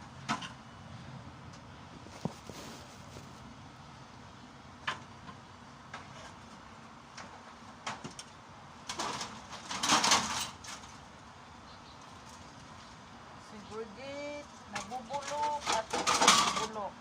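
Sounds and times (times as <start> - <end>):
metal scraping rattle: 8.9 - 11.0, 14.6 - 16.9.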